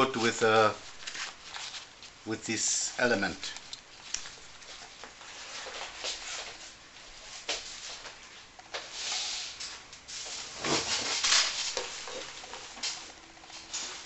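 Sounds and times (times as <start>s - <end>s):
fabric rustling: 0.0s - 2.2s.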